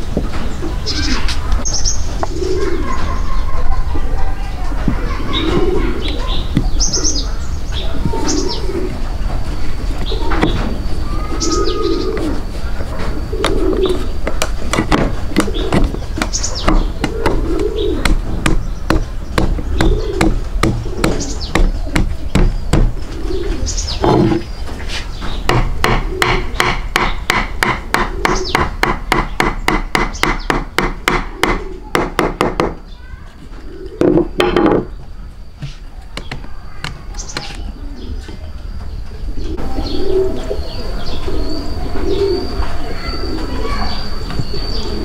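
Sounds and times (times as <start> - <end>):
birds cooing: 0.3 - 45.0.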